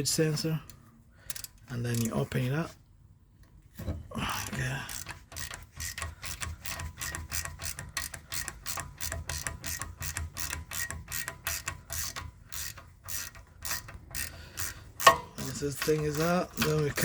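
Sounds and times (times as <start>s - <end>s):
ratchet wrench clicking: 1.3s - 2.2s, 4.4s - 17.0s.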